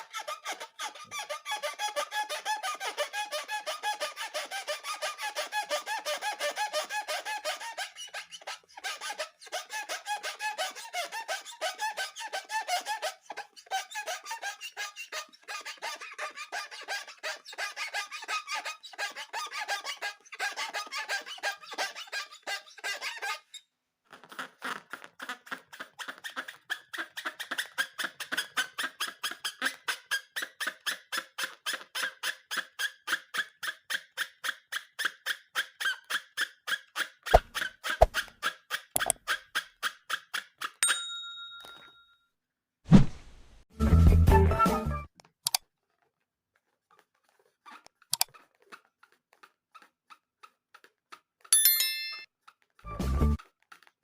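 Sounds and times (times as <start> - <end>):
rubber balloons squeaking: 0.0 - 5.5, 7.4 - 30.4, 37.3 - 39.6.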